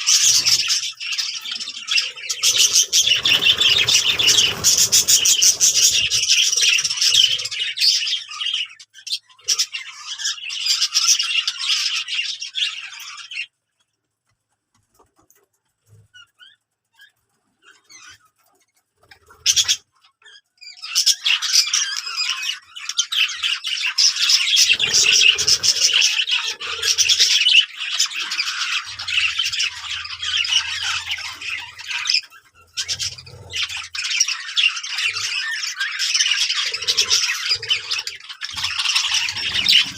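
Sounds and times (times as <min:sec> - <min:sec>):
budgerigars chattering: 0:00.0 - 0:13.5, 0:19.2 - 0:39.9.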